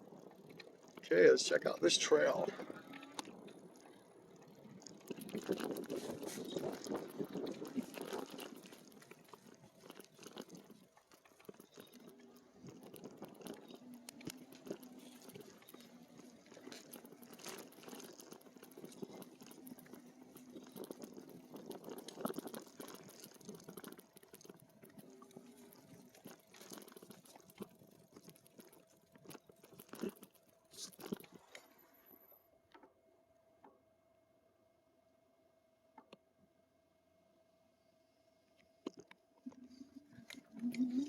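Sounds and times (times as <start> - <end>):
bike tyres crunching on trail: 0.1 - 28.3
sharp clicks and rattles: 0.1 - 31.7.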